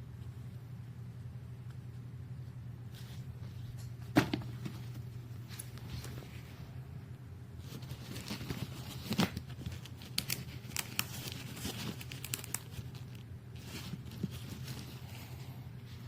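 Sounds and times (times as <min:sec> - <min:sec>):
steady low hum: 0:00.0 - 0:16.0
rustling and crinkling: 0:02.8 - 0:06.7, 0:07.6 - 0:16.0.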